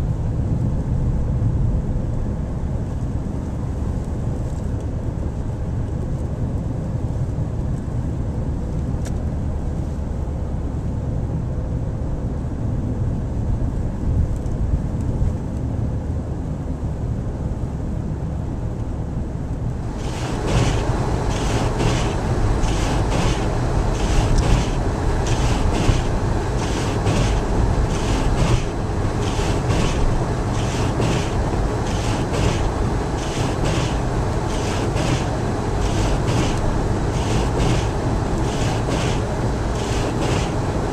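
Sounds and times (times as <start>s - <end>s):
car engine and road noise: 0.0s - 40.9s
crackling hiss: 19.8s - 40.9s.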